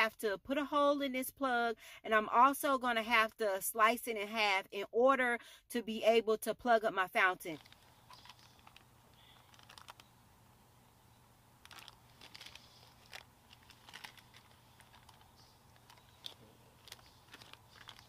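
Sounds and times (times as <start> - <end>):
soft crinkling and clicks: 7.4 - 10.1, 11.6 - 18.0
low steady hum: 7.5 - 18.0.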